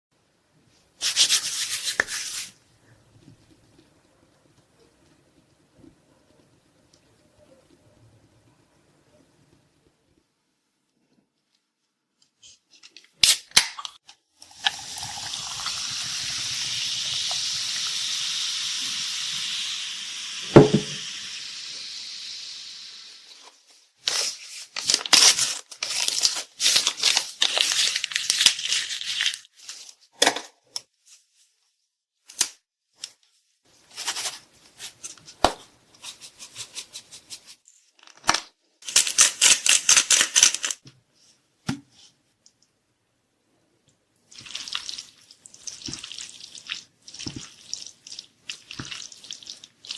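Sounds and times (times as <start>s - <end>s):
steady hiss: 14.8s - 23.6s
sharp knock: 20.5s - 21.0s
crackling and crinkling: 23.3s - 41.4s.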